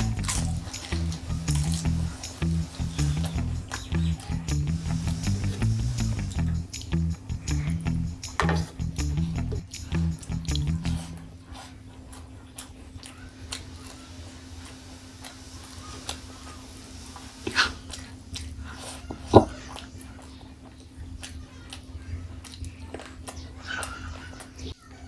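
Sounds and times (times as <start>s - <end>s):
food crunching bite: 0.0s - 3.9s
wet mouth clicks: 0.0s - 11.3s
chewing: 0.0s - 24.9s.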